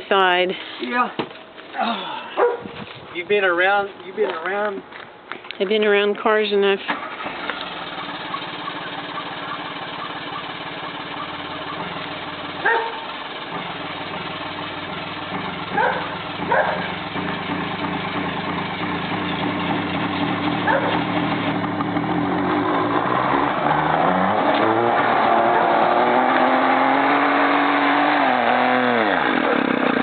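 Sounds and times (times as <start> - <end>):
dog barking: 2.4 - 2.7, 12.6 - 13.1, 15.8 - 16.9, 20.6 - 21.0
car engine idling and revving: 6.9 - 30.0.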